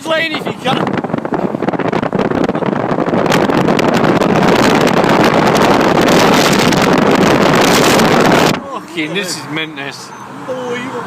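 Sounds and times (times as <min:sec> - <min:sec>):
wind buffeting microphone: 0:00.0 - 0:08.6
road noise: 0:00.0 - 0:11.0.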